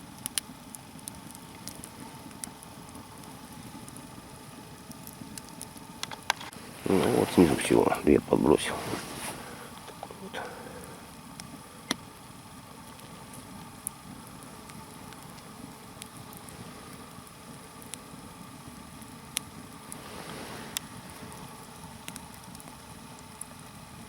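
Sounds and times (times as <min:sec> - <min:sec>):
sharp pops of fire: 0:00.0 - 0:07.6, 0:08.9 - 0:23.6
log fire crackling: 0:00.0 - 0:24.0
soft rushing noise: 0:06.6 - 0:09.7.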